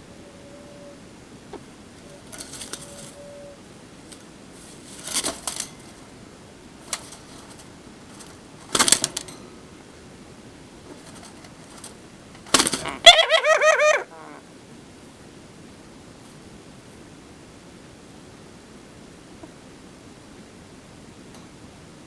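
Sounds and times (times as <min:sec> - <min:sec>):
lovebird harsh scratchy sounds: 0:12.5 - 0:14.4.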